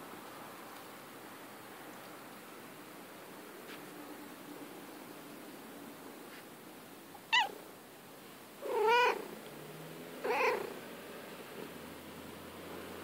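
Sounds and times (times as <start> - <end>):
cat meowing: 7.2 - 7.6, 8.6 - 9.3, 10.2 - 10.7.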